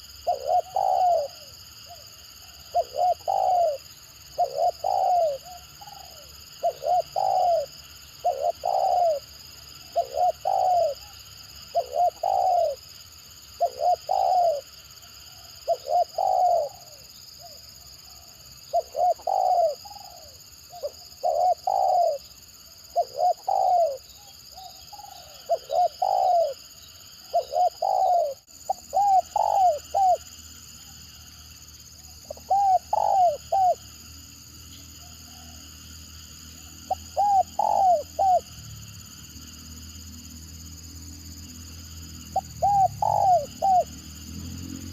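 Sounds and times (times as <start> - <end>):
dove cooing: 0.0 - 12.9, 13.6 - 30.3, 32.2 - 33.8, 36.6 - 38.6, 42.3 - 44.2.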